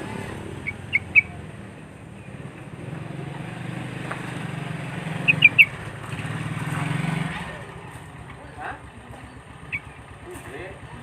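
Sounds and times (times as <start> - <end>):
low hum of traffic: 0.0 - 11.0
bird sharp chirps: 0.6 - 1.4, 5.2 - 5.8, 9.3 - 10.0.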